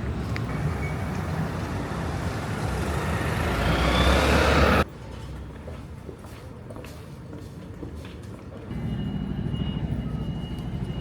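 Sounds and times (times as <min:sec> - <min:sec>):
passing vehicle rushing: 0:00.0 - 0:04.9.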